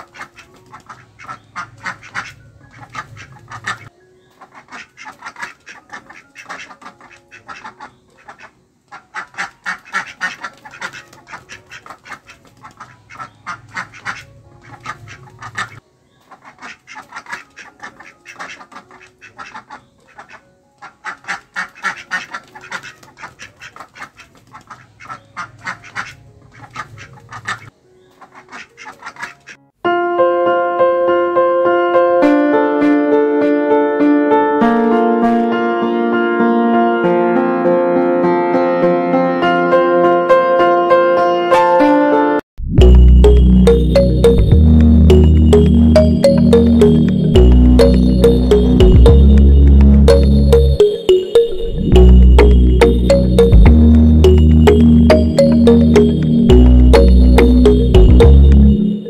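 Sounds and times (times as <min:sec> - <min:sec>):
ducks quacking: 0:00.0 - 0:29.6.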